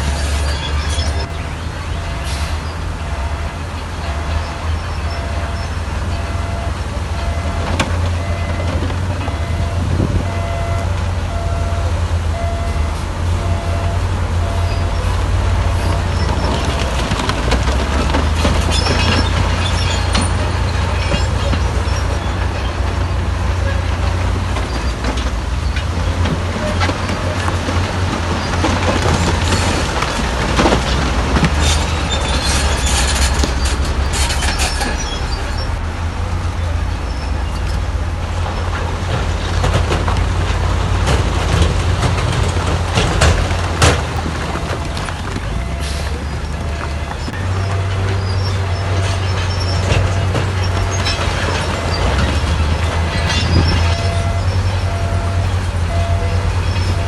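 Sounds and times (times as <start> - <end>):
bulldozer diesel engine rumbling: 0.0 - 57.0
steel tracks clanking: 0.0 - 57.0
sharp metal clanks and knocks: 48.9 - 54.4.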